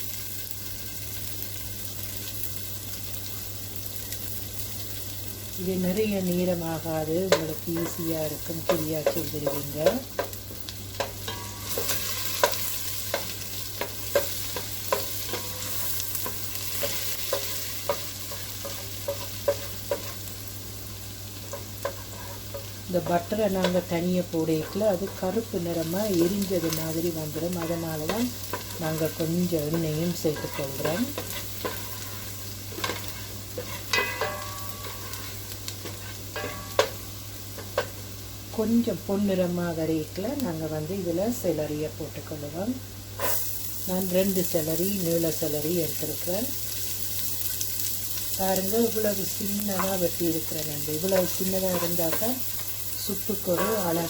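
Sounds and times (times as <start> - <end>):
vegetables sizzling in a pan: 0.0 - 54.0.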